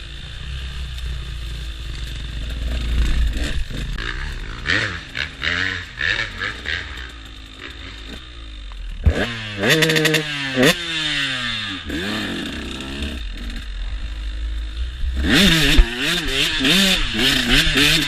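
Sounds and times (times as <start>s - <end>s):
motorbike engine revving: 0.0s - 18.0s.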